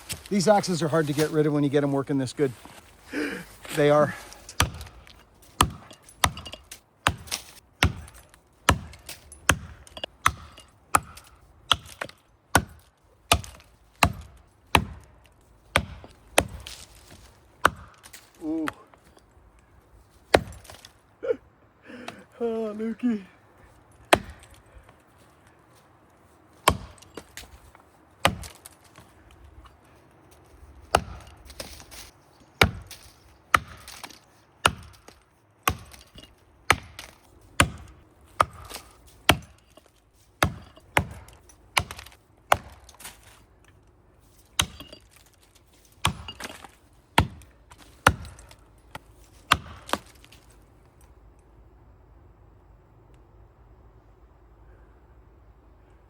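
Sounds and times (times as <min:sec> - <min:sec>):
axe chopping wood: 0:03.6 - 0:18.9, 0:20.2 - 0:21.0, 0:24.1 - 0:24.6, 0:26.6 - 0:27.6, 0:28.2 - 0:29.1, 0:30.8 - 0:43.4, 0:44.6 - 0:45.3, 0:45.9 - 0:50.5.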